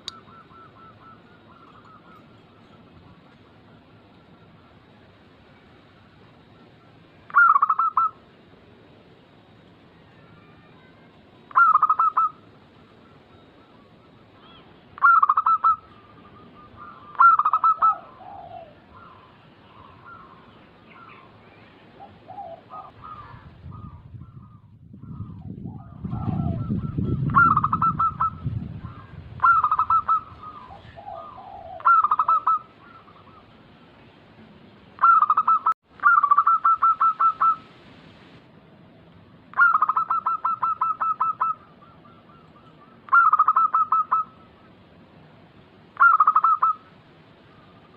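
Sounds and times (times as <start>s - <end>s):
dove bubbling coos: 0.0s - 4.8s, 6.5s - 8.2s, 11.5s - 14.2s, 15.0s - 21.3s, 22.0s - 33.7s, 35.0s - 37.8s, 39.5s - 44.6s, 46.0s - 46.9s.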